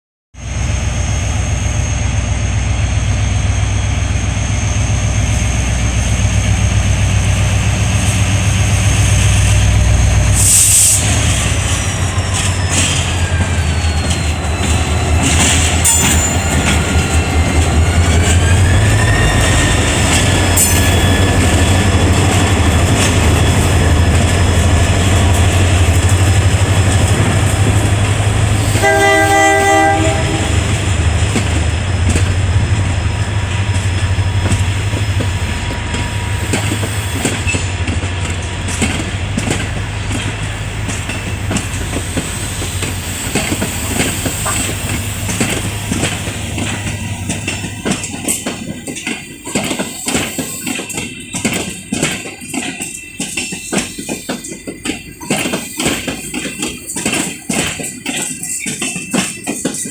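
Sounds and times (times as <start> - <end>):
diesel locomotive droning: 0.4 - 59.9
rail cars rolling: 0.4 - 59.9
train horn: 28.6 - 30.9.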